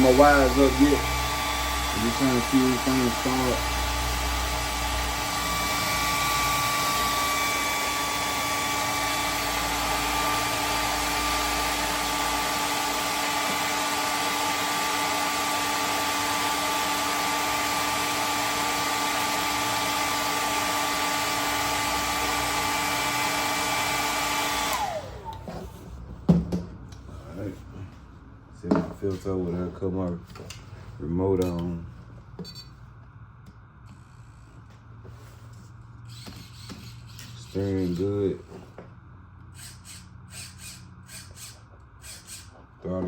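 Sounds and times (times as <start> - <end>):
motor spinning down: 0.0 - 25.4
hair dryer blowing: 0.0 - 25.5.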